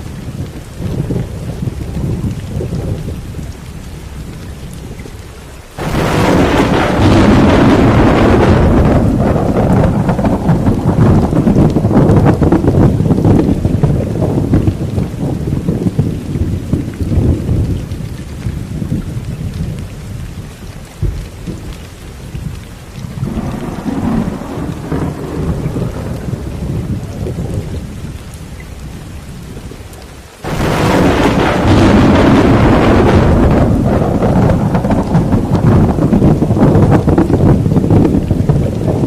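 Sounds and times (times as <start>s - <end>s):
rain: 0.0s - 39.0s
rolling thunder: 0.0s - 39.0s
loud burst of thunder: 5.8s - 18.0s, 23.0s - 39.0s.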